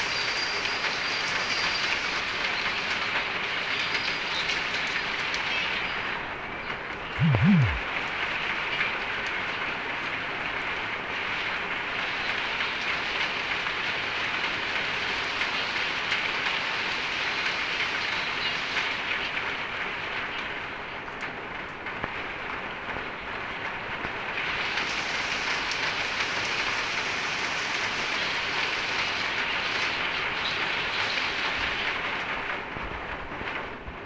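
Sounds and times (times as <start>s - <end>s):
steady rain: 0.0s - 34.0s
low sound swooping down: 7.2s - 7.8s.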